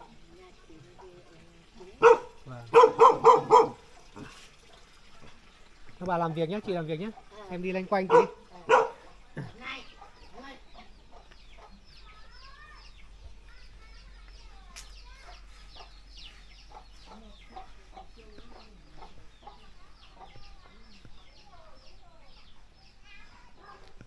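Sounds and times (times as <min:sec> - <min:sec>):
chickens clucking: 0:01.8 - 0:04.5, 0:08.1 - 0:12.0.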